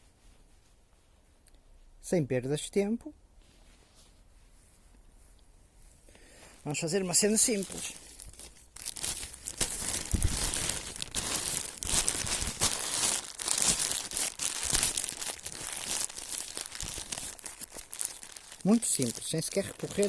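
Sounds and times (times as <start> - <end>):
plastic rubbish crinkling: 6.7 - 20.0.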